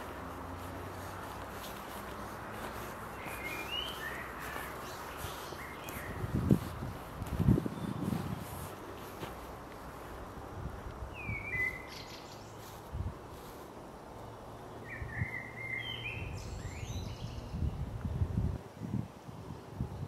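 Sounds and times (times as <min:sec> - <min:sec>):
soft footsteps: 0:00.0 - 0:11.0, 0:12.6 - 0:14.3
outdoor background noise: 0:00.0 - 0:20.0
songbird calling: 0:01.0 - 0:06.7, 0:07.6 - 0:08.2, 0:11.1 - 0:12.8, 0:14.5 - 0:17.8.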